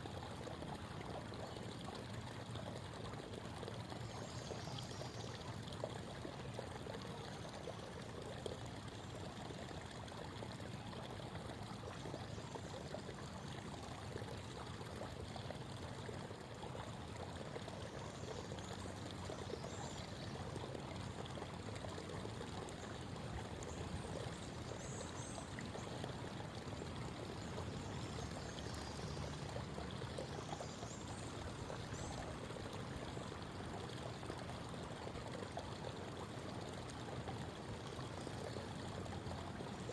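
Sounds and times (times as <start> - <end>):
creek babbling over rocks: 0.0 - 39.9.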